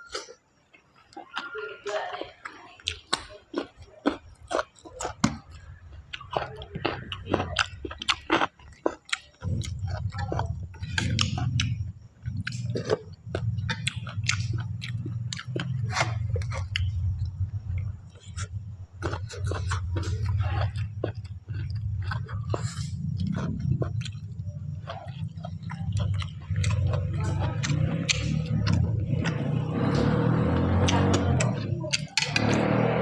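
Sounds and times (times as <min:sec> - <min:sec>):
chewing mushrooms: 0:00.0 - 0:33.0
low rumble: 0:09.4 - 0:33.0.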